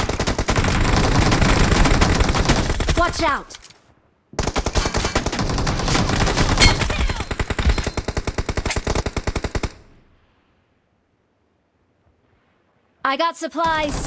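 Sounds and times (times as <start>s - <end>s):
rapid automatic gunfire: 0.0s - 3.3s, 4.4s - 9.8s.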